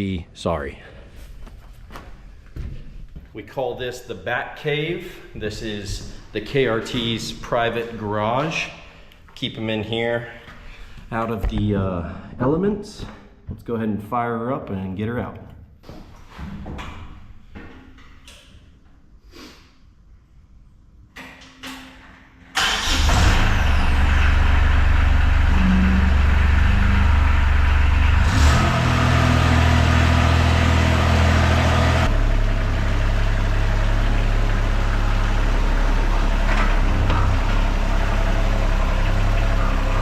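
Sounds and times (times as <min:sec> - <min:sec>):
skid steer engine running: 0:22.9 - 0:40.0.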